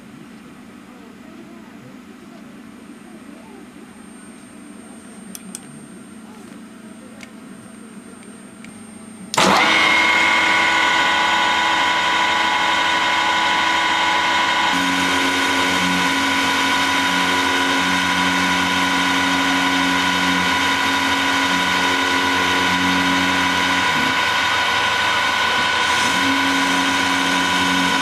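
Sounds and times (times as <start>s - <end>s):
lathe running with whine: 8.4s - 28.0s
low hum: 8.8s - 28.0s.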